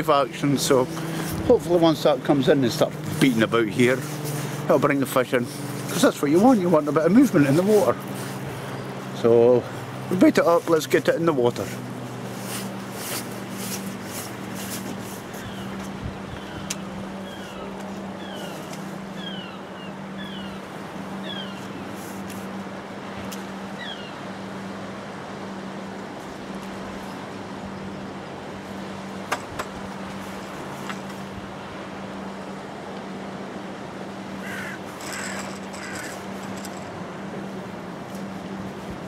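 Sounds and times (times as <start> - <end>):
sea noise: 0.0 - 39.0
wind: 0.0 - 39.0
bird calling falling note: 34.4 - 36.9.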